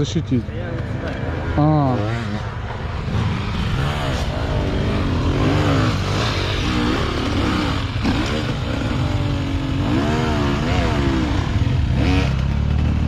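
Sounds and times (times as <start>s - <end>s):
motorcycle engine revving: 0.9s - 13.0s.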